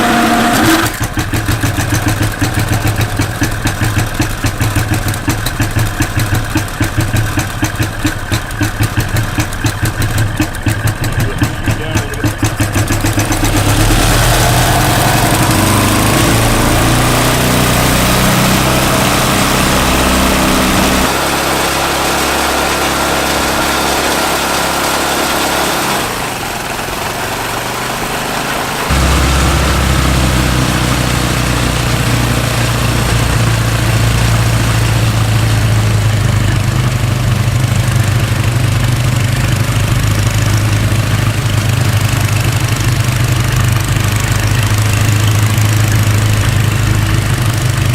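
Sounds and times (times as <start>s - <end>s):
snowblower engine running: 0.0s - 47.9s.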